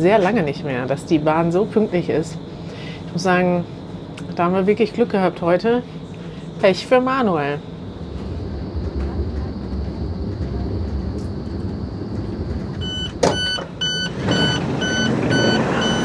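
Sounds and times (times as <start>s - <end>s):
train low rumble: 0.0s - 16.0s
electronic door beeps: 12.8s - 16.0s.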